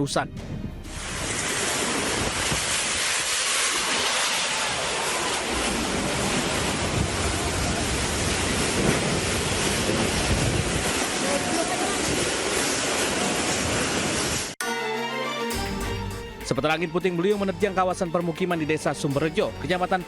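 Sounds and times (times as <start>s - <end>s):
strong wind: 0.3s - 14.6s
heavy rain: 0.9s - 14.6s.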